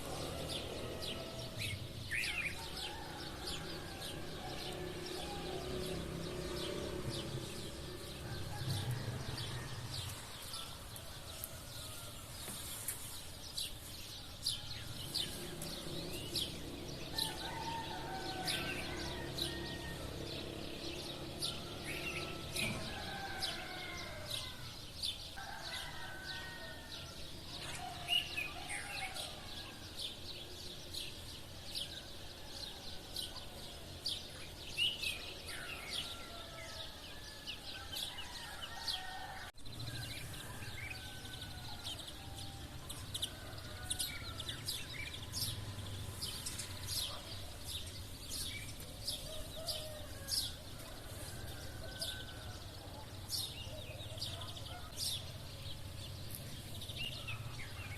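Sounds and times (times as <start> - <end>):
roosters crowing: 0.0 - 57.9
sparrows chirping: 0.0 - 57.9.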